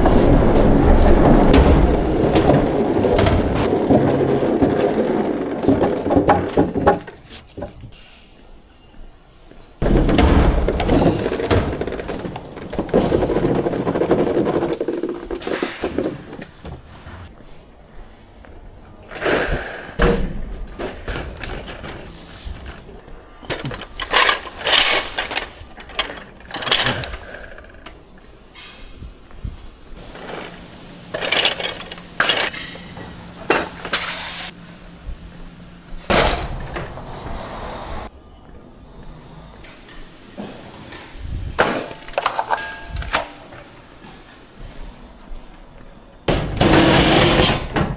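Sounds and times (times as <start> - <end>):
equipment rumbling and clattering: 0.0 - 8.1, 9.5 - 17.3, 18.8 - 47.9
steady low hum: 19.8 - 41.9
equipment clattering and clinking: 20.0 - 34.2, 41.6 - 47.9.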